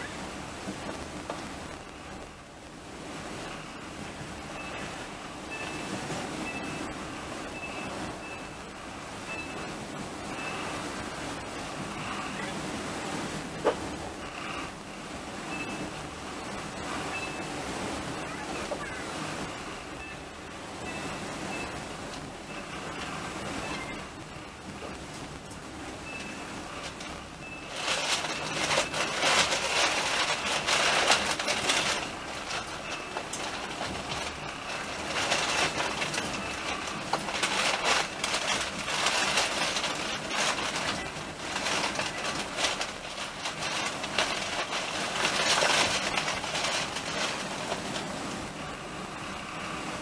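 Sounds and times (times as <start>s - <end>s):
train wheels rattling on rails: 20.8s - 50.0s.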